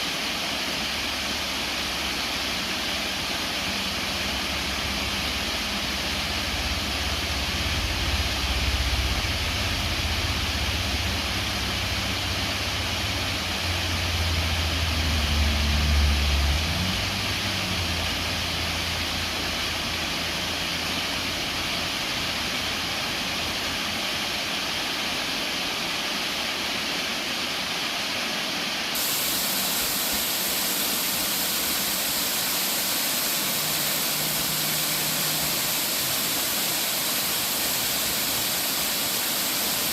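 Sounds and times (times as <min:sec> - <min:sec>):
waterfall rushing: 0:00.0 - 0:39.9
low rumble: 0:06.3 - 0:13.0.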